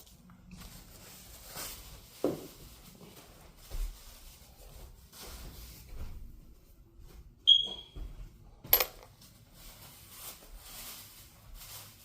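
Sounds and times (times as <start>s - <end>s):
handling noises: 8.0s - 12.0s.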